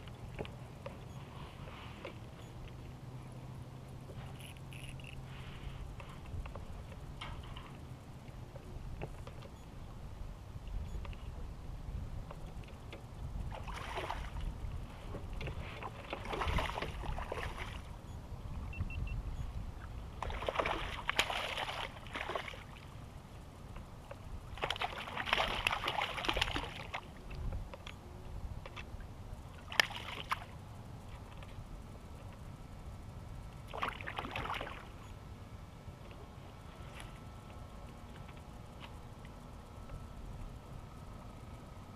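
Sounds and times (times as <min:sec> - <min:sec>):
low steady rumble: 0:00.0 - 0:41.9
paddle splashing water: 0:13.5 - 0:17.9, 0:20.2 - 0:22.9, 0:24.5 - 0:27.2, 0:29.6 - 0:30.6, 0:33.7 - 0:34.9.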